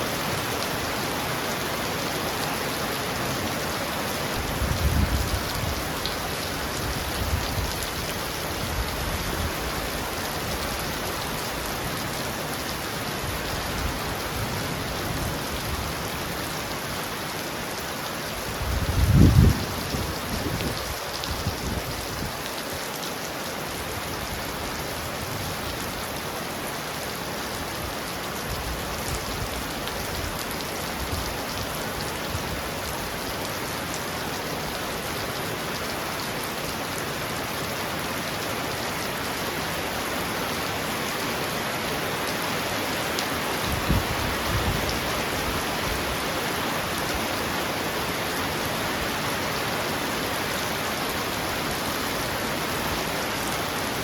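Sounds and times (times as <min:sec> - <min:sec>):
heavy rain on a roof: 0:00.0 - 0:54.0.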